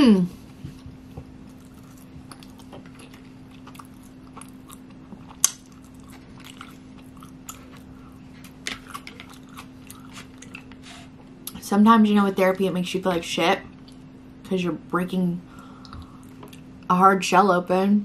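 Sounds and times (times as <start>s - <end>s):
faint steady hum: 0.0s - 18.0s
wet chewing clicks: 1.5s - 7.9s.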